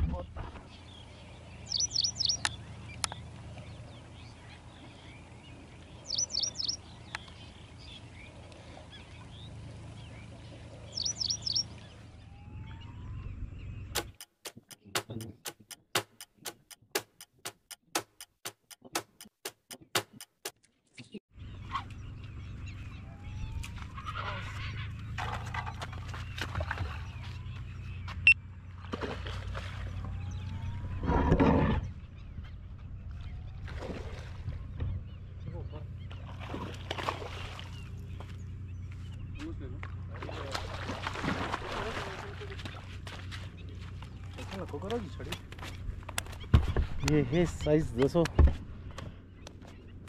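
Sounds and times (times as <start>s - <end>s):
bird calling in high bursts: 1.7s - 2.4s, 6.1s - 6.8s, 11.0s - 11.6s
sharp evenly spaced ticks: 6.1s - 6.8s, 11.0s - 11.6s, 13.9s - 20.6s.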